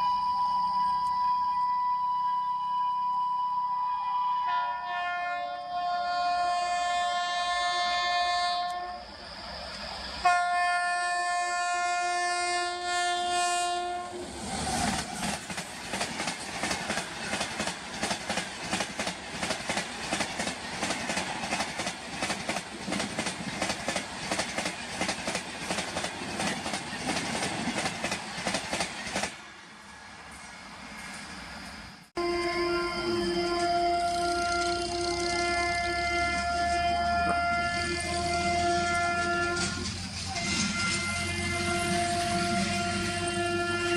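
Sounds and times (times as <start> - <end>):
train horn blast: 1.4 - 9.1, 10.2 - 14.2, 32.2 - 43.9
train wheels clattering: 14.8 - 29.5.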